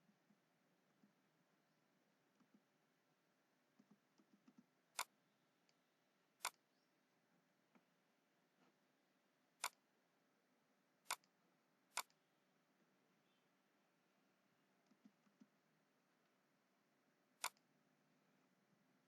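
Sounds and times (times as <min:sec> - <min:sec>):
computer mouse clicking: 0:03.8 - 0:05.8, 0:06.4 - 0:06.6, 0:09.6 - 0:09.8, 0:11.1 - 0:11.3, 0:11.9 - 0:12.2, 0:14.8 - 0:15.6, 0:17.4 - 0:17.7
faint ticks: 0:17.4 - 0:17.7.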